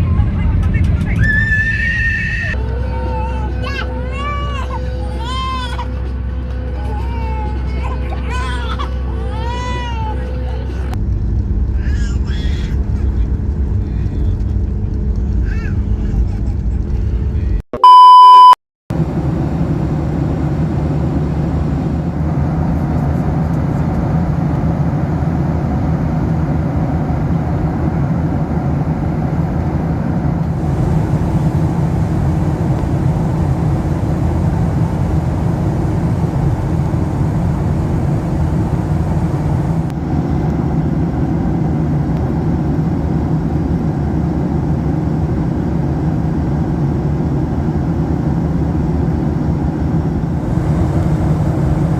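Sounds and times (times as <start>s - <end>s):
airplane cabin engine noise: 0.0s - 51.9s
electronic beep: 17.8s - 18.6s.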